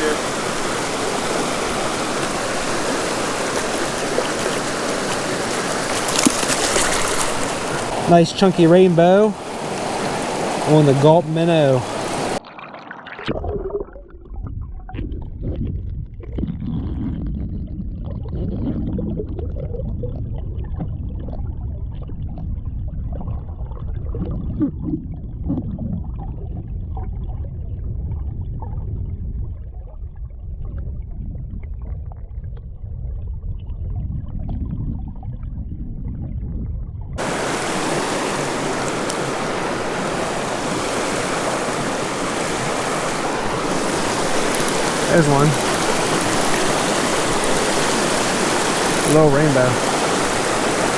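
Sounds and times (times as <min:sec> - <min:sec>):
creek water flowing: 0:00.0 - 0:14.1, 0:37.2 - 0:50.9
underwater bubbling and gurgling: 0:00.0 - 0:50.9.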